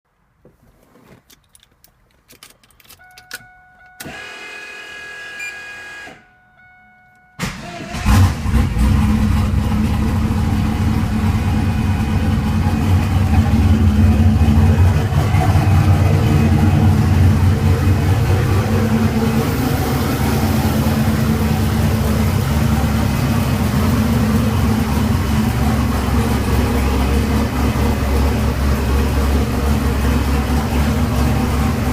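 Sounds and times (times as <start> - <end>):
electric starter whir: 3.9 - 6.3
engine firing and idling loudly: 7.4 - 31.9.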